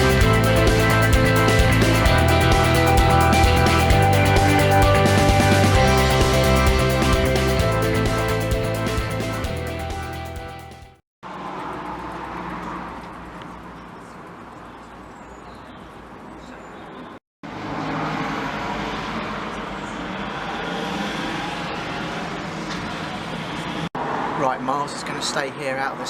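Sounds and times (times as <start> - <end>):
road traffic noise: 0.0 - 9.8, 11.2 - 26.0
background music: 0.0 - 11.0.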